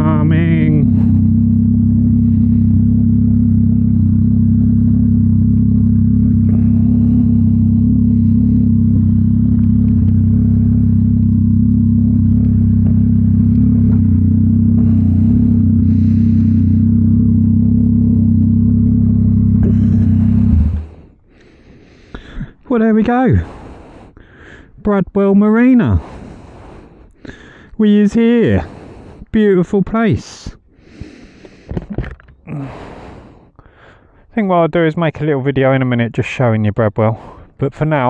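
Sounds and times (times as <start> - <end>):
motorcycle engine idling: 0.0 - 22.5.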